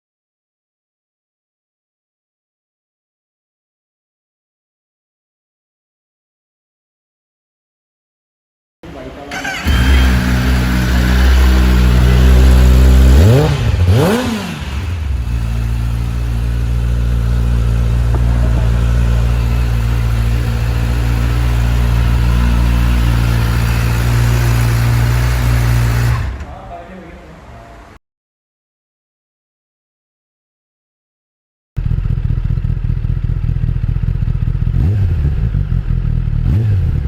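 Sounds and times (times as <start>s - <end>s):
motorcycle engine idling and revving: 8.9s - 26.5s, 31.8s - 37.0s.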